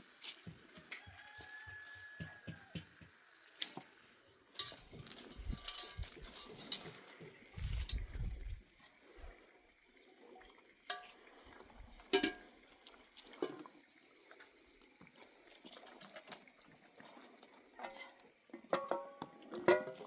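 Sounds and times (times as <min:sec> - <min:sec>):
metal cookware clinking: 0:04.6 - 0:08.3, 0:10.9 - 0:11.2, 0:12.1 - 0:12.5, 0:18.7 - 0:20.0
quiet handling sounds: 0:04.6 - 0:08.6.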